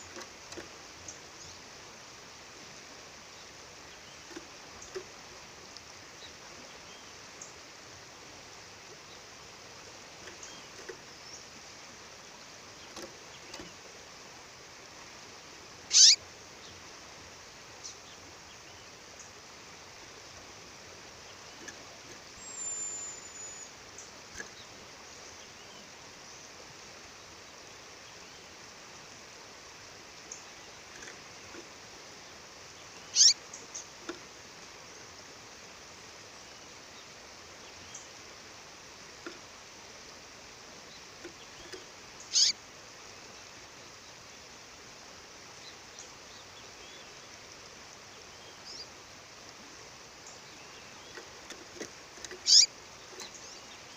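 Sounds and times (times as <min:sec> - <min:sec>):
songbird chirps: 0:00.0 - 0:53.9
faint bird chips: 0:15.9 - 0:16.2, 0:33.1 - 0:33.9, 0:41.3 - 0:42.6, 0:51.0 - 0:53.6.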